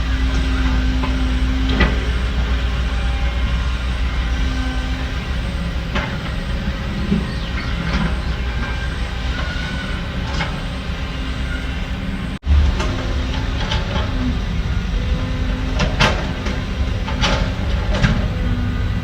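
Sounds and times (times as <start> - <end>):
machinery squeaks: 0.0 - 12.4
low diesel rumble: 0.0 - 19.0.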